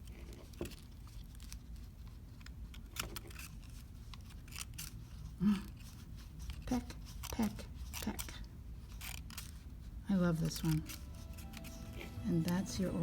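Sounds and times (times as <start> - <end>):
low steady hum: 9.6 - 13.0.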